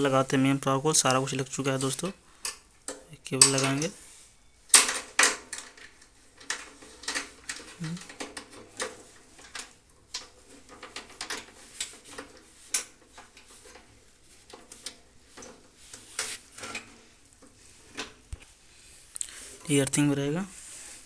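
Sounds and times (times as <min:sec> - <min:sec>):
small clicks and scratchy handling: 0:04.7 - 0:20.0.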